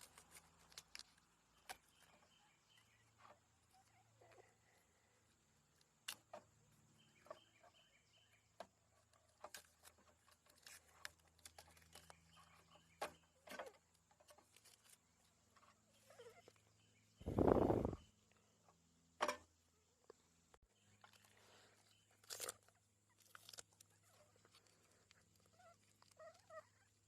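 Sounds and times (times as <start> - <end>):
rustle: 0.0 - 5.2.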